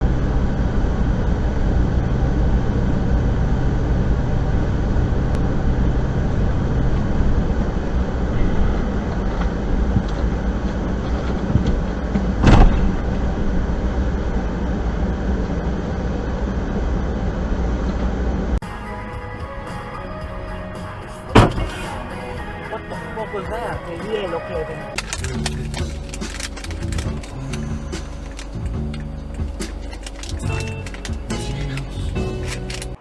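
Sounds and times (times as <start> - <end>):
car engine and road rumble: 0.0 - 33.0
collision bang: 21.3 - 22.0.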